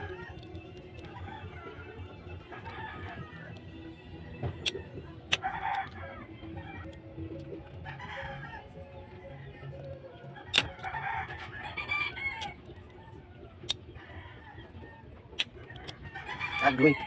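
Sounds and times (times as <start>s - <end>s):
chickens clucking: 4.4s - 17.0s
rooster crowing: 10.6s - 13.2s, 15.8s - 17.0s.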